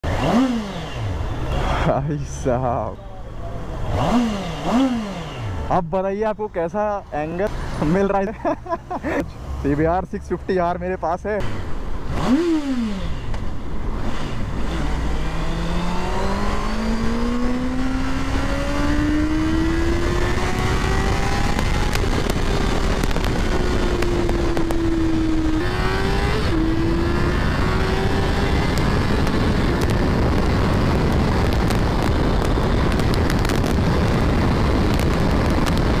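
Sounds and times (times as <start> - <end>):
motorcycle engine accelerating: 0.0 - 2.1, 3.6 - 5.8, 11.4 - 36.0
wind rushing: 15.2 - 36.0
wind buffeting clicks: 21.4 - 25.7, 28.2 - 36.0.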